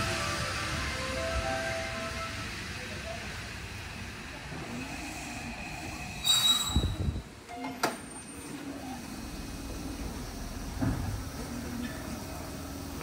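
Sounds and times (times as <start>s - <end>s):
high brake squeal: 6.1s - 7.2s
train running rumble: 9.0s - 13.0s
low thud of train halting: 10.6s - 11.4s.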